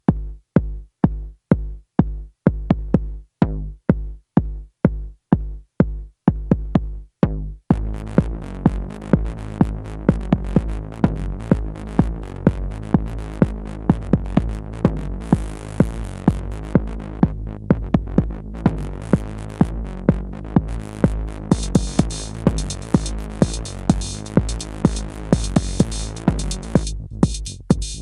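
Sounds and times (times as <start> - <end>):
beat with bass and hi-hats: 0.0 - 28.0.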